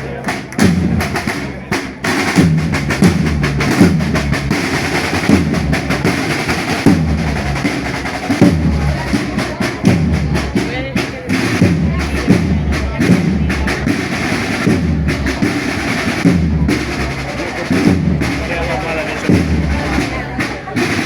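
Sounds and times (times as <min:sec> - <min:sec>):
music with drum beat and bass: 0:00.0 - 0:21.0.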